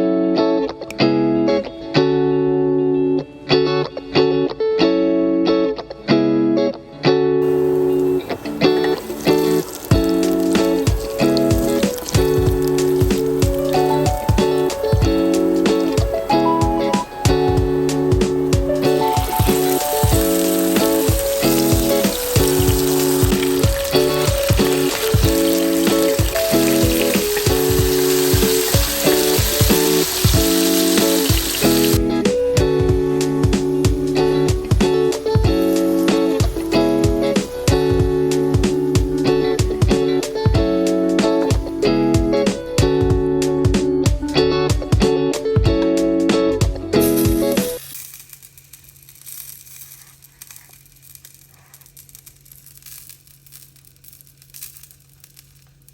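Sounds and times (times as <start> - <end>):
background music: 0.0 - 47.9
food sizzling in a pan: 7.4 - 32.2, 33.1 - 44.4, 47.0 - 55.9
faint crackling: 7.4 - 32.6, 47.2 - 55.9.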